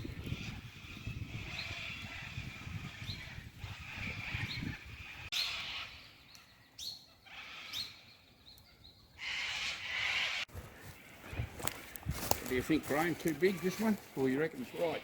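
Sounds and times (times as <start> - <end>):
birds chirping: 0.0 - 15.0
high bird chatter: 0.0 - 15.0.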